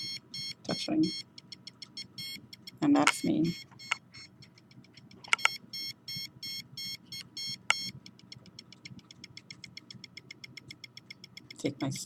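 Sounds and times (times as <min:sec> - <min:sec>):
signal detector beeping: 0:00.0 - 0:08.0.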